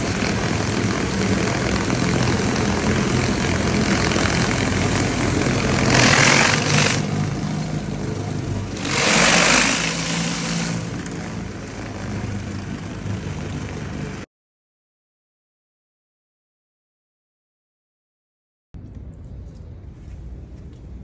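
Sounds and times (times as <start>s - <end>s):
high-pressure water spray hissing: 0.0s - 14.2s
small gas engine running: 0.0s - 14.3s.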